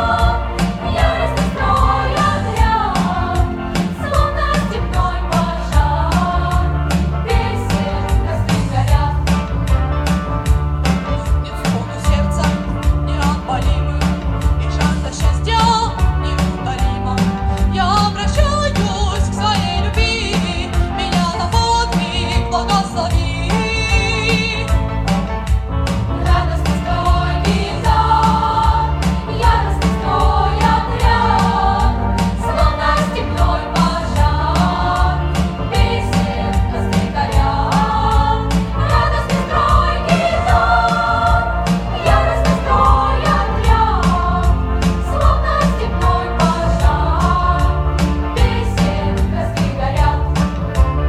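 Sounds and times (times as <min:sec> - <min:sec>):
children's choir singing: 0:00.0 - 0:09.4, 0:26.2 - 0:50.6
instrumental accompaniment with beat: 0:00.0 - 0:51.0.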